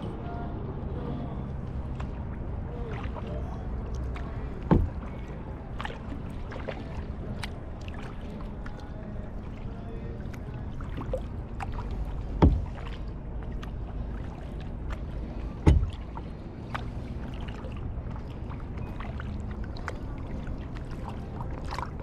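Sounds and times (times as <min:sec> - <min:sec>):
low rumble: 0:00.0 - 0:22.0
paddle dipping and water dripping: 0:01.6 - 0:22.0
small water splashes: 0:01.6 - 0:22.0
paddle knocking kayak hull: 0:03.9 - 0:08.8, 0:09.4 - 0:22.0.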